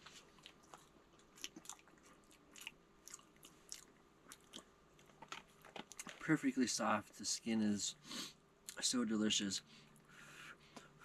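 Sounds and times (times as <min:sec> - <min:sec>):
person chewing food: 0:00.0 - 0:06.2.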